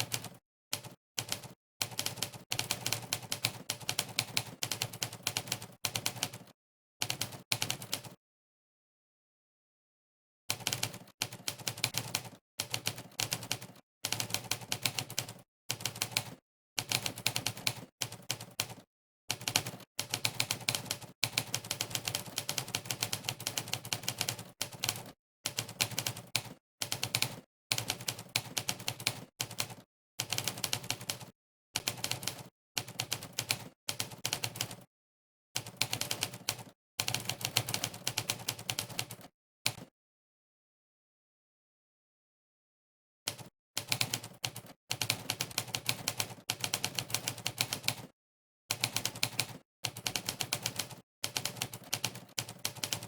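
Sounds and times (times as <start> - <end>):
typewriter keystroke clacks: 48.7 - 53.0.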